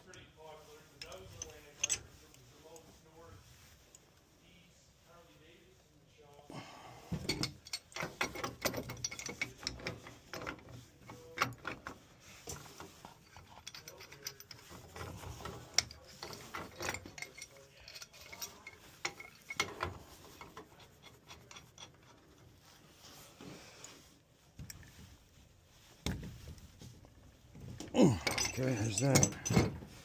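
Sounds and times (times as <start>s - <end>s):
hand tools clicking on metal pipe: 7.3s - 10.6s, 12.6s - 22.2s, 28.0s - 29.6s.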